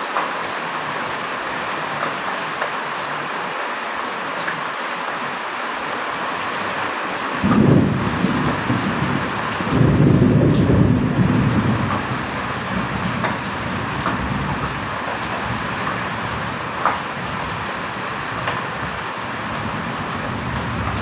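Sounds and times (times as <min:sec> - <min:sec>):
heavy rain hissing: 0:00.0 - 0:21.0
thunder rumbling: 0:07.4 - 0:21.0.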